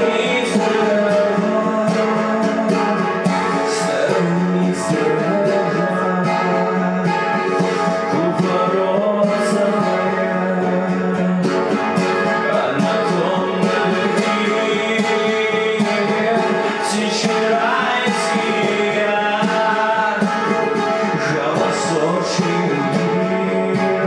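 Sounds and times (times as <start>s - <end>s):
acoustic guitar folk song: 0.0s - 24.0s
person singing: 0.0s - 24.0s.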